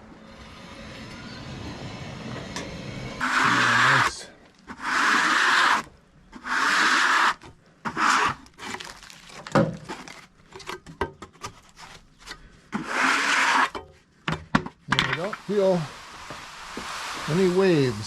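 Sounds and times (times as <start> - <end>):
hand rubbing rough wood: 3.1 - 8.9, 11.6 - 13.7.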